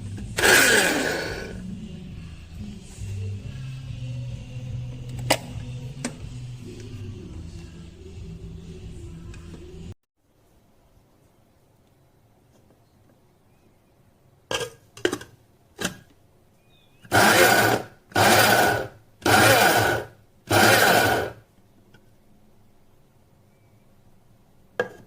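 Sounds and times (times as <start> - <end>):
electric grinder whirring: 0.2 - 1.6, 17.1 - 21.4.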